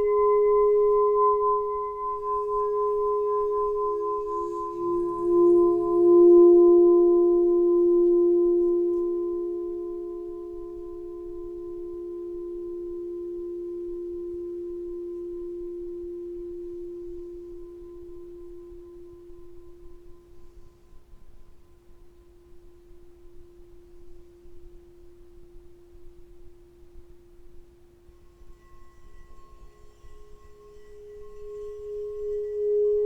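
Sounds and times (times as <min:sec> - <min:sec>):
singing bowl ringing: 0:00.0 - 0:20.9, 0:28.0 - 0:33.0.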